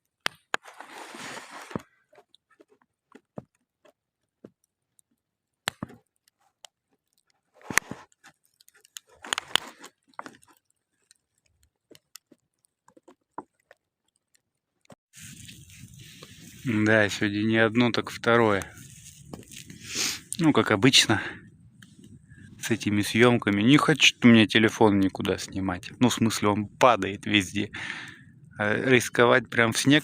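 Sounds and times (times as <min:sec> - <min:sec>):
crunchy handling noise: 0:00.0 - 0:21.0
campfire crackling: 0:02.3 - 0:30.0.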